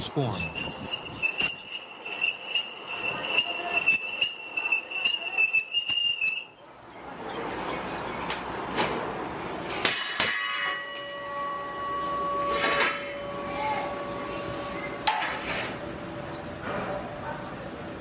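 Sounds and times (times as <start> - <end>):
ringing hum: 0.0 - 6.5, 9.9 - 15.3
metal strikes: 9.8 - 13.6.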